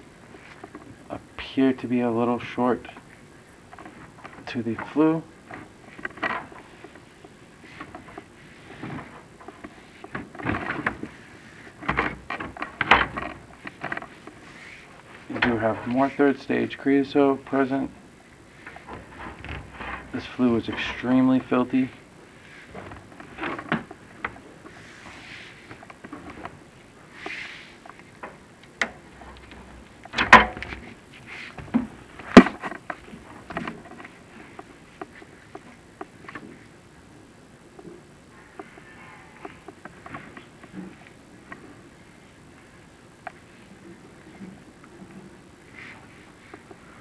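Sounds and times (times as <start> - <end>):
camera cable scraping in chimney flue: 13.2 - 23.9
push rods knocking in a flue: 18.7 - 21.0.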